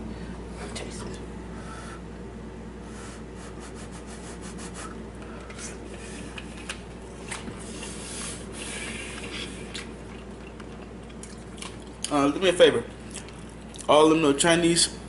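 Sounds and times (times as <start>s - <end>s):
person chewing food: 4.6s - 12.1s, 13.0s - 13.9s.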